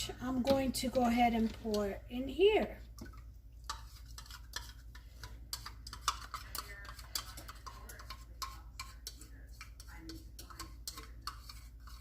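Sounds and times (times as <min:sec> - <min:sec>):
spoon clinking and scraping bowl: 0:03.0 - 0:12.0.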